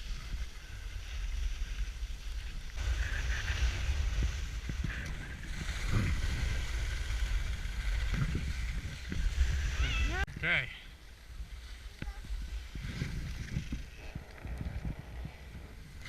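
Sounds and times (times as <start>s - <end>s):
skis sliding on snow: 0.0s - 10.3s, 11.0s - 14.0s
wind buffeting microphone: 0.0s - 16.0s.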